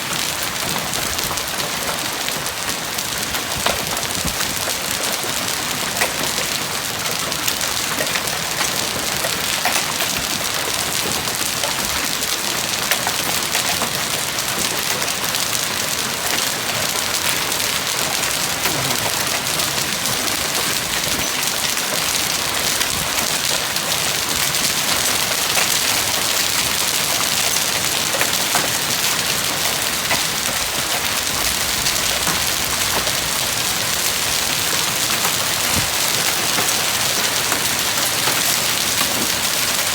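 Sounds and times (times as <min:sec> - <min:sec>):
hailstones striking: 0:00.1 - 0:39.9
heavy rain hiss: 0:15.9 - 0:27.4.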